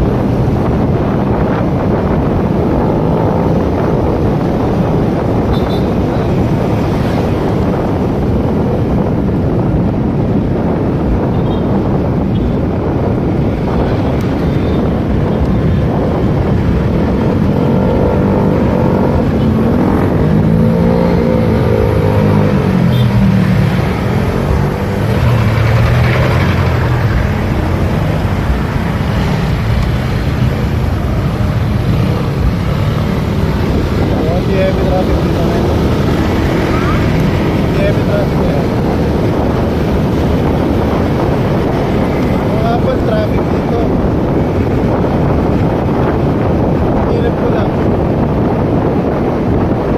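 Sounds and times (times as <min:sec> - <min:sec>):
wind noise on microphone: 0:00.0 - 0:49.9.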